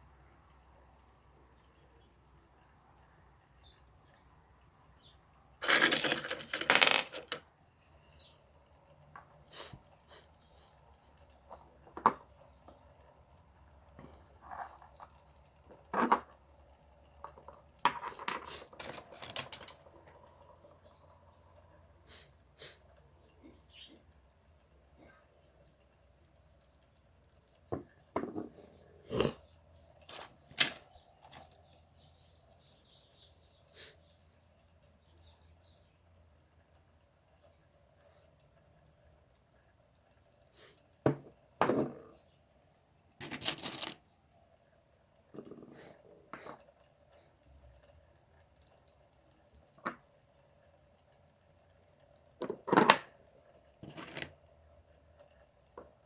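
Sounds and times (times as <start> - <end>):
small stones rattling: 5.6 - 7.4, 17.2 - 20.2, 43.2 - 44.0, 53.8 - 54.4.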